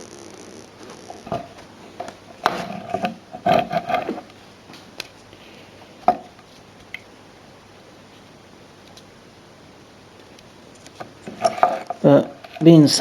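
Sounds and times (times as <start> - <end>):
hard objects clattering and knocking: 1.3 - 4.4, 6.0 - 6.4, 10.8 - 12.8.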